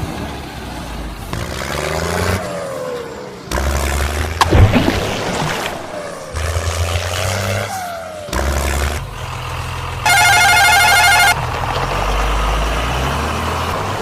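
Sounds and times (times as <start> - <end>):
electronic jingle of beeping tones: 10.1 - 11.4.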